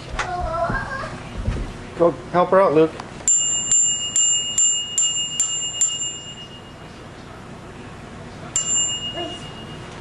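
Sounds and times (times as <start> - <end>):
bicycle bell dings: 3.3 - 7.0, 8.6 - 10.0.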